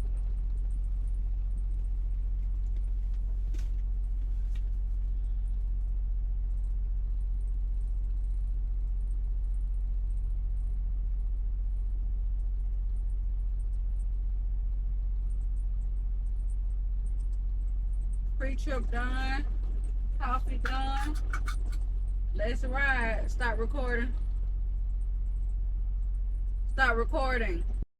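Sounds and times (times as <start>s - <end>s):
diesel truck engine idling: 17.5s - 27.6s.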